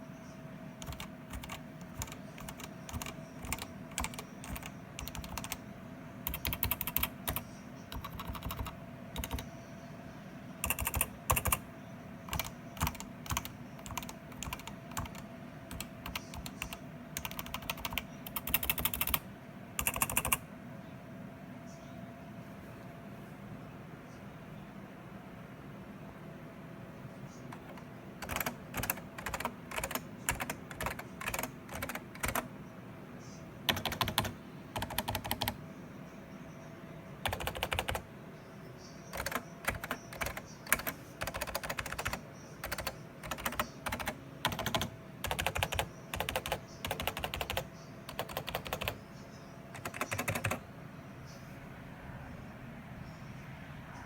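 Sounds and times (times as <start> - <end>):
computer keyboard typing: 0.8 - 5.6, 6.2 - 9.5, 10.6 - 11.7, 12.3 - 19.2, 19.8 - 20.4, 27.5 - 32.5, 33.7 - 35.6, 37.2 - 38.1, 39.1 - 49.0, 49.7 - 50.6.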